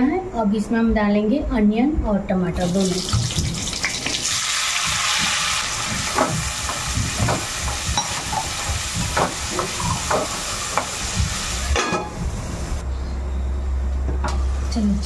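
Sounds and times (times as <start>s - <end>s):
vegetables sizzling in oil: 2.6s - 12.8s.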